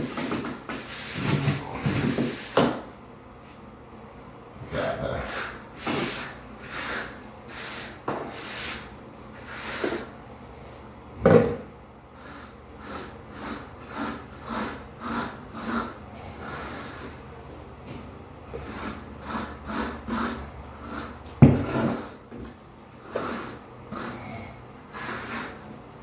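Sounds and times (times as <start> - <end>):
hand tool scraping mortar: 18.6 - 22.2.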